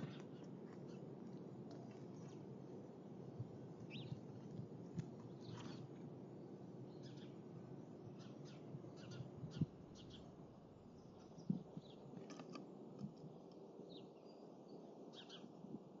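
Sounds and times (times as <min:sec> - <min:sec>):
songbirds chirping: 0:00.0 - 0:15.7
faint low background noise: 0:00.0 - 0:16.0.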